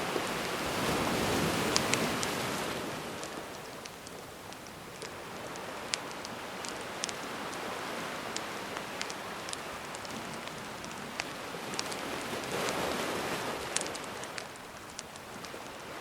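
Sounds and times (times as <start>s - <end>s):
gentle sea waves washing: 0.0s - 16.0s
campfire crackling and popping: 0.2s - 16.0s.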